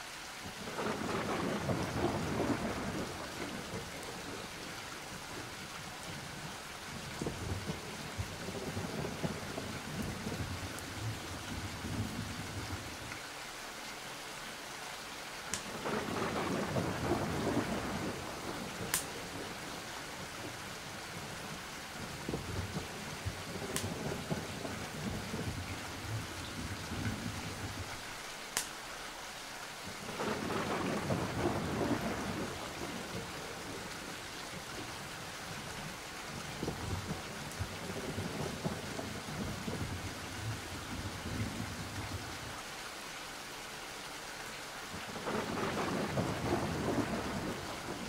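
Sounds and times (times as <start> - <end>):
steady rain: 0.0 - 48.0
thunder rolling: 0.6 - 4.5, 7.2 - 12.9, 15.7 - 27.9, 30.0 - 34.1, 36.4 - 42.3, 45.2 - 48.0.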